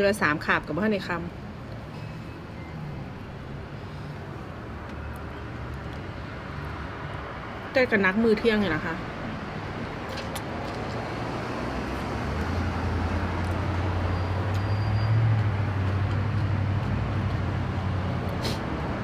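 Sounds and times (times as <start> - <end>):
road traffic background: 0.0 - 19.0
vehicle engine hum passing: 8.9 - 19.0.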